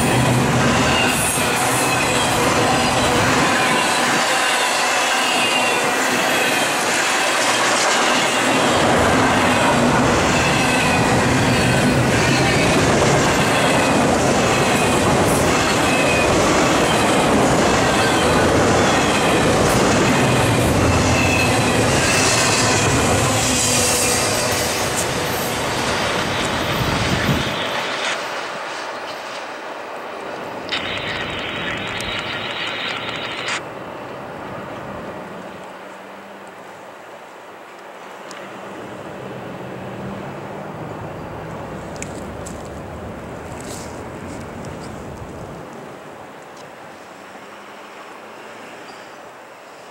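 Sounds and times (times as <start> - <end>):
freight train wheels rumbling: 0.0 - 35.2.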